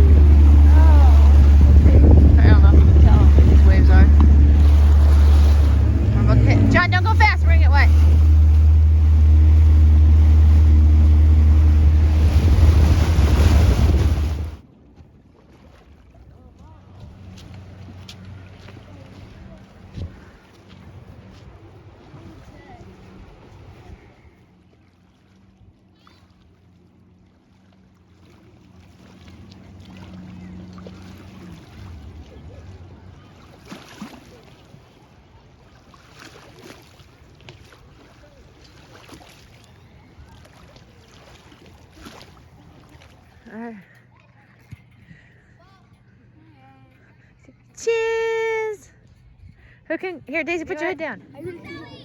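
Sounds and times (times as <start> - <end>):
rushing water: 0.0 - 14.6, 15.3 - 43.8
wind rumble on microphone: 0.0 - 14.6, 18.9 - 24.4
water splashing: 0.0 - 45.5
motorboat engine drone: 0.0 - 52.0
wind: 0.0 - 52.0.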